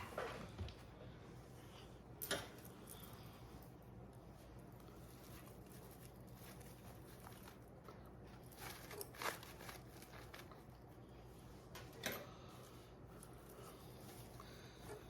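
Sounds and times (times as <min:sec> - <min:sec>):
ribbon rustling and crackling: 0:02.6 - 0:11.3.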